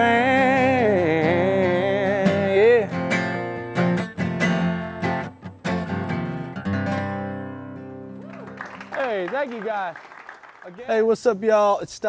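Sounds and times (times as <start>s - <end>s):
acoustic guitar strumming: 0.0s - 8.9s.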